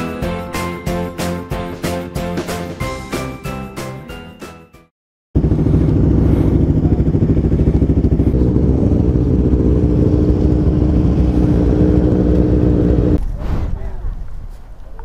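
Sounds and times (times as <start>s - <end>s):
motorcycle engine idling: 5.4s - 13.2s.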